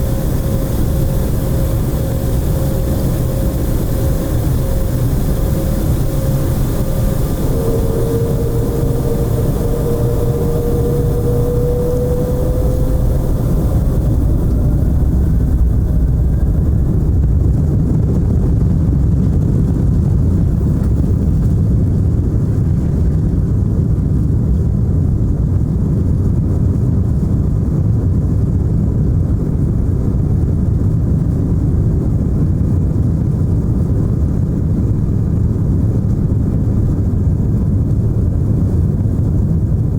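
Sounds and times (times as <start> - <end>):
high hiss: 0.0 - 16.2
airliner engines rumbling: 0.0 - 39.9
faint engine whine: 0.0 - 39.9.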